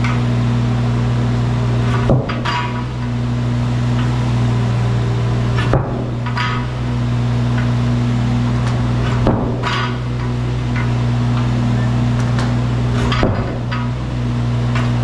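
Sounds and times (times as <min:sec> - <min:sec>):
excavator diesel engine running: 0:00.0 - 0:15.0
sharp metallic clanks: 0:01.9 - 0:03.2, 0:05.5 - 0:06.9, 0:08.6 - 0:11.6, 0:12.2 - 0:14.1.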